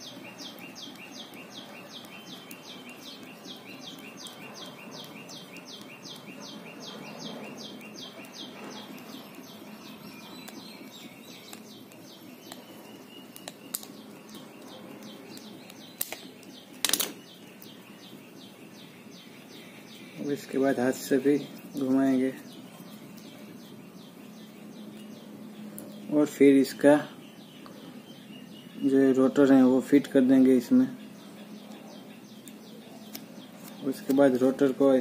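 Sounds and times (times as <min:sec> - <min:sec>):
small bird chirping: 0:00.0 - 0:35.0
sharp clicks: 0:10.4 - 0:17.7.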